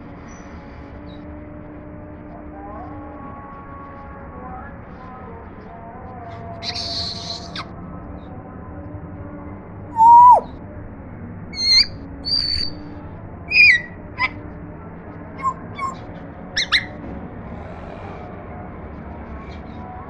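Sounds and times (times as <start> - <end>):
parrot chirps and whistles: 6.6 - 7.7, 10.0 - 10.5, 11.6 - 12.8, 13.5 - 14.4, 15.4 - 16.0, 16.6 - 16.9
parrot loud whistle: 10.0 - 10.5, 11.6 - 12.8, 13.5 - 14.3, 15.4 - 16.0, 16.6 - 16.9.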